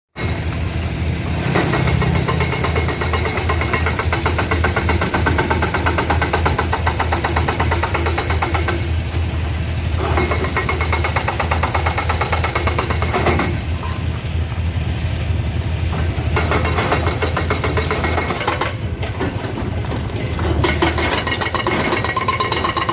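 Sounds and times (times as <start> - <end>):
excavator diesel engine running: 0.2 - 22.9.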